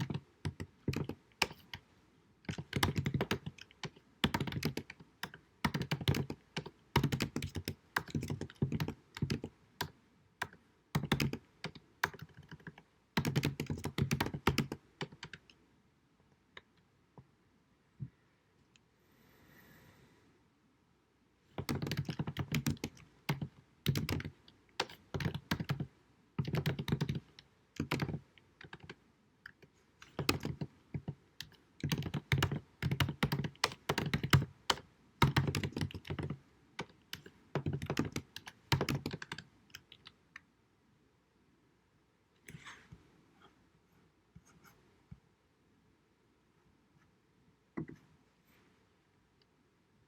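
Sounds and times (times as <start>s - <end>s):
computer keyboard typing: 0.0s - 1.8s, 2.5s - 15.6s, 21.6s - 40.2s.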